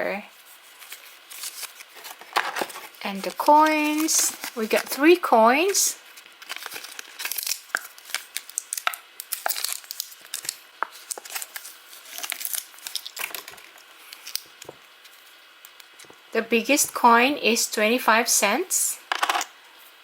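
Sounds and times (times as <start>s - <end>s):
plastic packaging crinkling and tearing: 0.4s - 16.2s
play coins handled: 19.1s - 19.5s.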